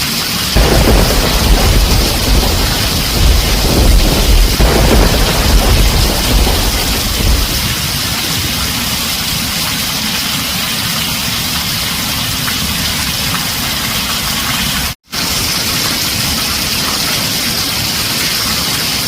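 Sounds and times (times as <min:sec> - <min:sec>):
heavy rain on a tin roof: 0:00.0 - 0:19.0
low thunder rumble: 0:00.6 - 0:09.5.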